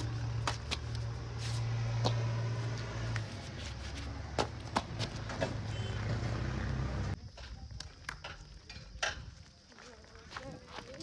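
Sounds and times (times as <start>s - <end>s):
diesel engine running: 0.0s - 7.2s.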